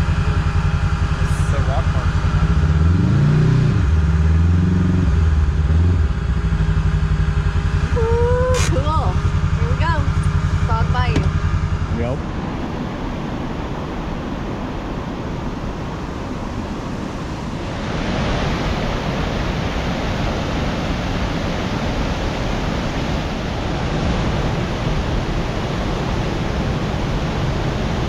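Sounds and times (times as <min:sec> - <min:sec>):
creek water rushing: 0:06.6 - 0:28.0.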